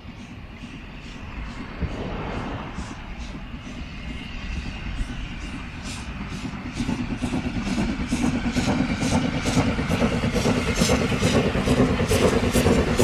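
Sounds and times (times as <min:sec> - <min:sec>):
steam locomotive exhaust chuffing: 0:00.0 - 0:13.0
low rumble: 0:00.4 - 0:07.5.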